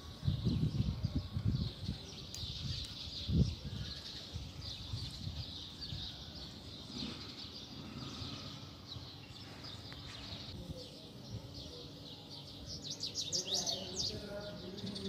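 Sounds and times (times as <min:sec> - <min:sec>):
low outdoor background noise: 0:00.0 - 0:15.0
small birds chirping and twittering: 0:00.0 - 0:15.0.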